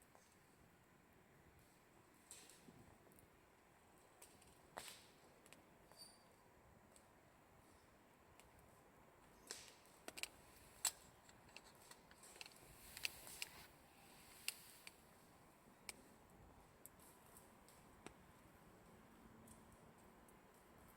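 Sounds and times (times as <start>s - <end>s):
short hiss: 12.6s - 15.0s.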